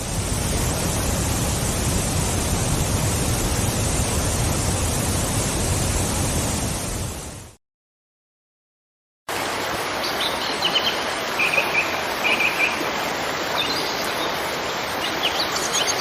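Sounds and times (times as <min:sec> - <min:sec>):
waterfall rushing: 0:09.3 - 0:16.0.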